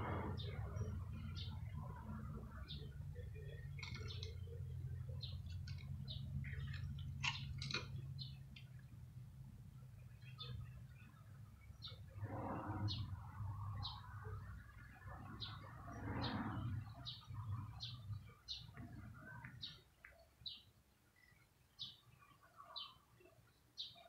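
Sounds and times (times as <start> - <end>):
low steady hum: 0.0 - 20.0
small bird chirping: 2.6 - 8.9.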